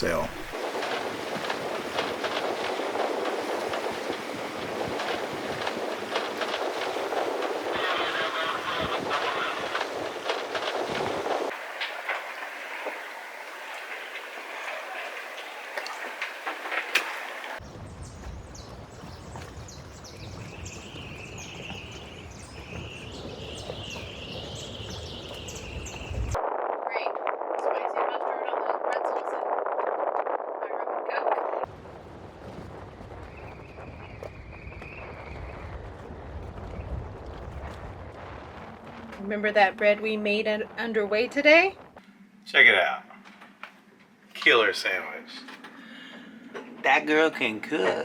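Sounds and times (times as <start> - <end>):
water rushing along hull: 0.0 - 26.4.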